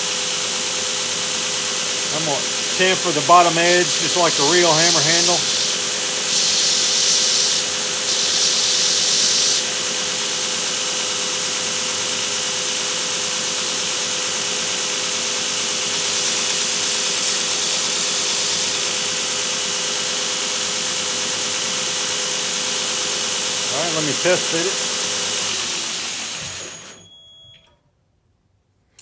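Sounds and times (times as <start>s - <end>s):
belt grinder sanding wood: 0.9s - 10.5s, 14.8s - 19.8s, 22.0s - 26.9s.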